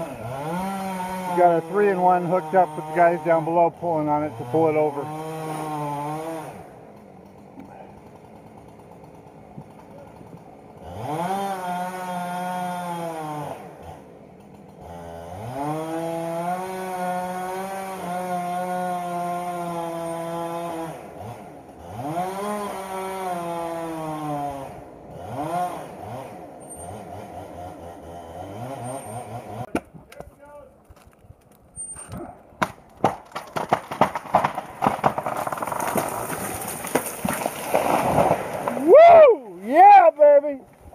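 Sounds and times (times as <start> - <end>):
chainsaw revving while cutting: 0.0 - 29.7, 33.9 - 38.8
wood cracking and snapping: 29.7 - 31.8, 32.6 - 39.0.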